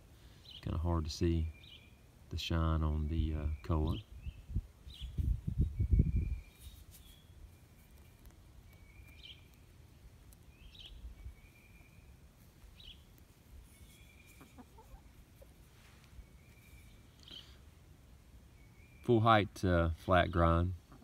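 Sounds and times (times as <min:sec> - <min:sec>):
low microphone rumble: 0:04.1 - 0:06.5
faint bird calls: 0:10.3 - 0:17.8.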